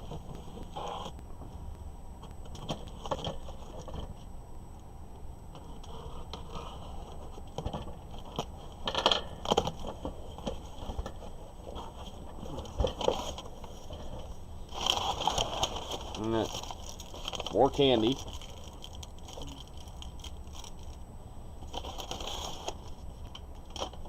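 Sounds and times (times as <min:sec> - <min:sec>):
cardboard box crinkling and crackling: 0:09.4 - 0:21.0, 0:21.6 - 0:24.0.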